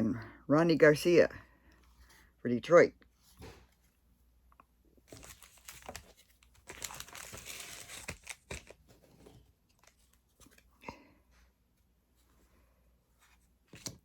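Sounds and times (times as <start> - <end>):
cards and foil wrapper crinkling: 5.0 - 10.7.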